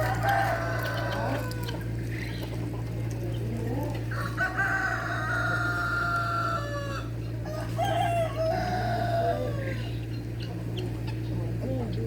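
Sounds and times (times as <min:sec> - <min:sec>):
rooster crowing: 0:00.0 - 0:01.8, 0:04.1 - 0:09.9
steady low hum: 0:00.0 - 0:12.0.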